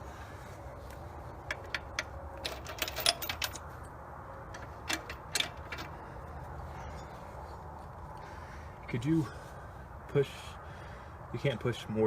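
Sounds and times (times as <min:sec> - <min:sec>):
tools clicking and tapping: 0:01.4 - 0:03.7, 0:04.5 - 0:05.9.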